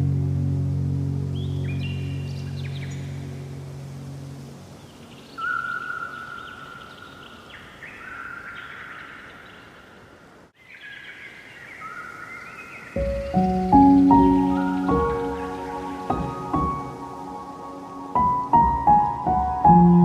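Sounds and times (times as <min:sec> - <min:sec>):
soft low music notes: 0:00.0 - 0:05.2, 0:13.0 - 0:20.0
faint outdoor hiss: 0:00.0 - 0:20.0
birds singing and chirping: 0:01.4 - 0:03.3, 0:10.6 - 0:19.8.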